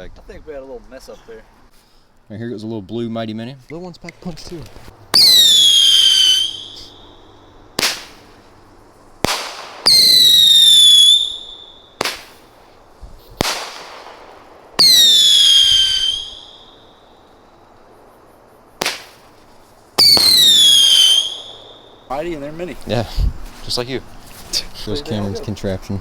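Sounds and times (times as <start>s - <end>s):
firework bangs: 4.3s - 23.2s
firework whistles: 4.6s - 22.2s.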